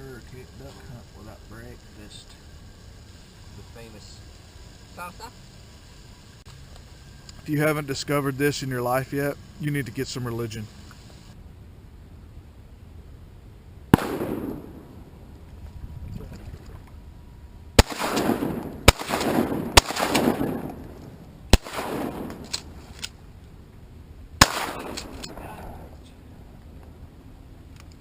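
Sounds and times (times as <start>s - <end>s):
shotgun shots with echo: 13.9s - 15.1s, 17.8s - 22.8s, 24.4s - 25.6s.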